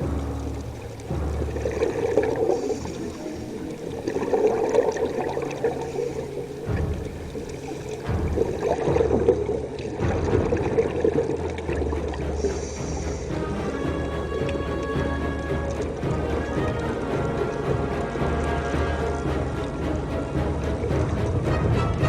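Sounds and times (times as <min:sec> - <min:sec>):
muffled water sloshing and gurgling: 0:00.0 - 0:22.0.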